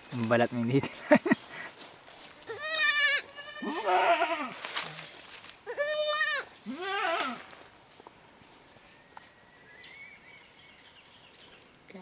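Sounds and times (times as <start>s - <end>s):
goats bleating: 2.5s - 4.6s, 5.7s - 7.4s.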